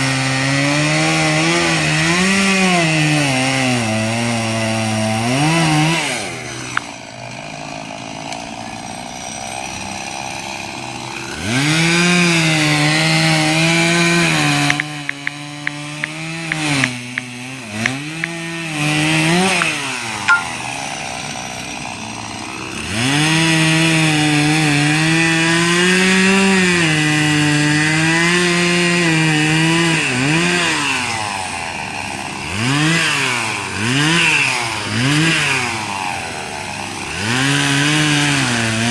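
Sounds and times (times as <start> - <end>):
chainsaw cutting tree: 0.0 - 38.9
sharp clicks: 14.7 - 18.4.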